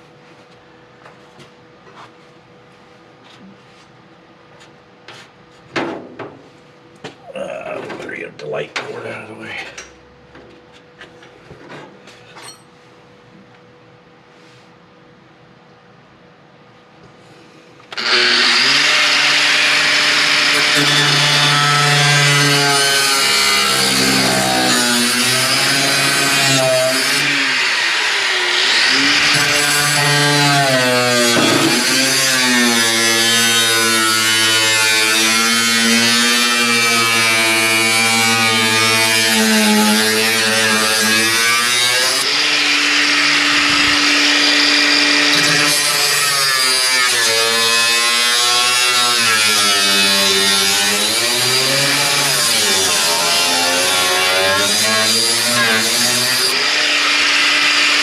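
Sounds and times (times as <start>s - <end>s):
power saw cutting sheet steel: 17.9s - 58.0s.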